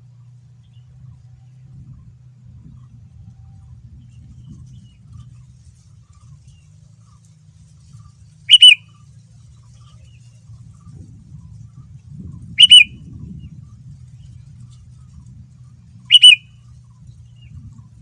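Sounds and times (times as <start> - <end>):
faint low hum: 0.0 - 18.0
bird calling: 8.5 - 8.8, 12.6 - 12.9, 16.1 - 16.5.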